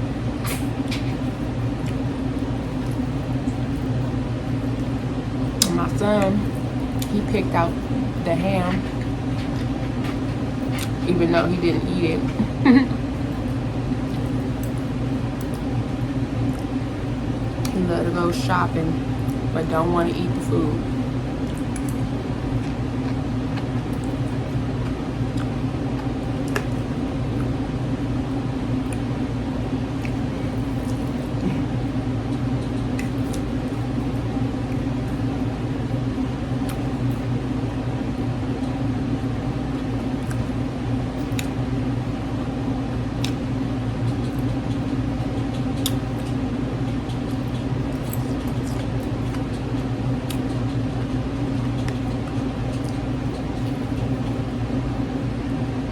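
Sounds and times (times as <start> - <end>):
low mechanical hum: 0.0 - 55.9
eating clicks and smacks: 8.7 - 11.0, 13.3 - 17.8, 21.4 - 27.6, 28.2 - 29.2, 30.0 - 35.3, 36.5 - 37.3, 39.7 - 40.6, 41.2 - 41.6, 43.2 - 54.5.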